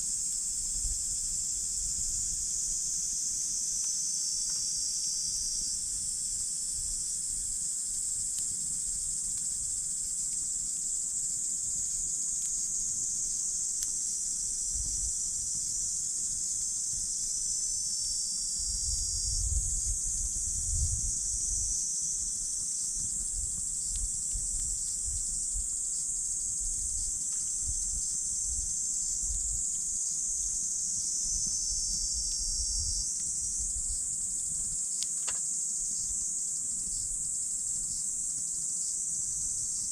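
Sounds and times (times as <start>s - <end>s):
insects trilling: 0.0s - 39.9s
campfire crackling: 5.6s - 17.8s, 22.7s - 31.4s.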